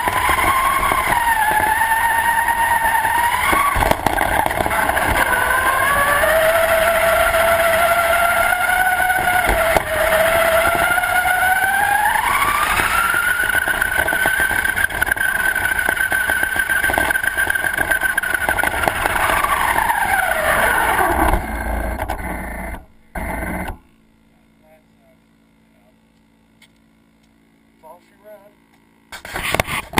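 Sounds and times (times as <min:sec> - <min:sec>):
rc car motor whining: 0:00.0 - 0:23.9.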